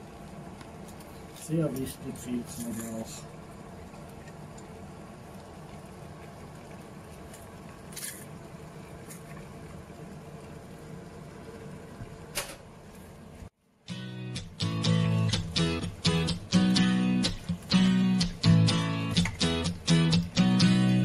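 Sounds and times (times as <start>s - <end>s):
food sizzling in a pot: 6.9s - 9.9s.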